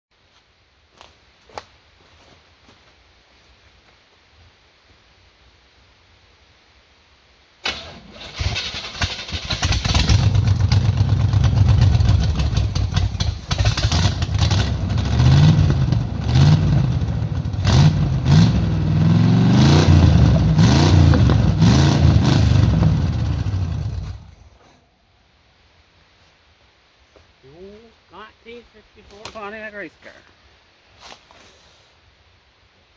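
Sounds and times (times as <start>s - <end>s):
race car engine revving: 8.3s - 24.4s.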